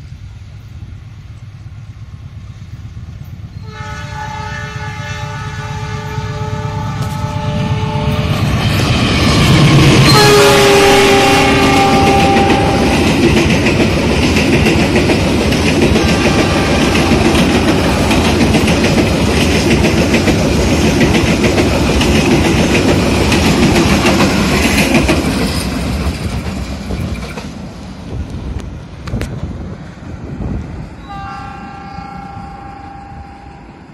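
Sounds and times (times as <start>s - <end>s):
locomotive horn: 3.6s - 8.5s, 10.0s - 13.1s, 31.0s - 33.9s
train wheels clattering over rail joints: 11.5s - 29.6s.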